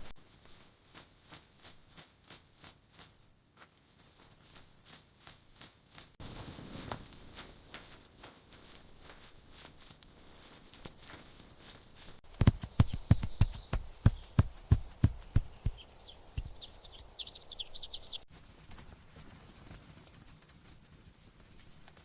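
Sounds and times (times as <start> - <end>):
sharp taps: 12.3 - 16.6
high bird chirps: 12.7 - 14.4, 15.2 - 18.3.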